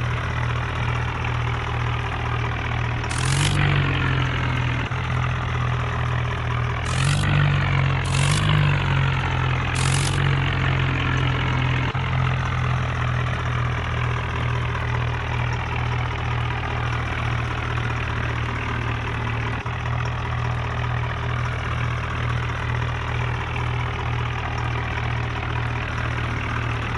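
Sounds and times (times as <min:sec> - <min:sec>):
tractor diesel engine idling: 0:00.0 - 0:26.9
short hissing bursts: 0:09.8 - 0:10.2.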